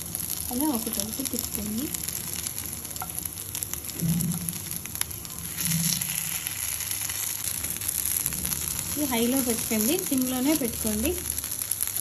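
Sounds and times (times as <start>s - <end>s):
patties sizzling in oil: 0.0s - 12.0s.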